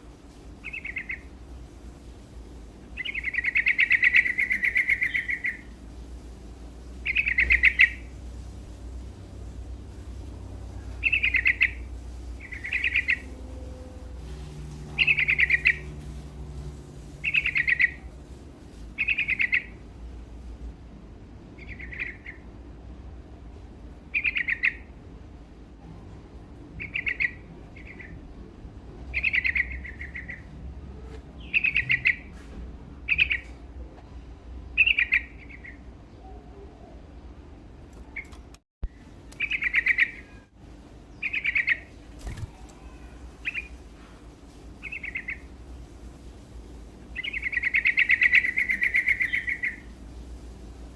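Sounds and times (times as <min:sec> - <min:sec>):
faint low hum: 0:00.0 - 0:50.9.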